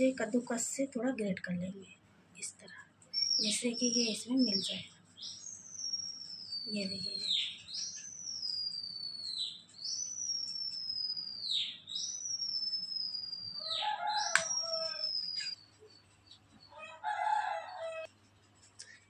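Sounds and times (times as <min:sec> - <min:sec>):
bird whistling downward call: 0:09.9 - 0:15.6
rooster crowing: 0:13.6 - 0:15.3, 0:16.7 - 0:18.1.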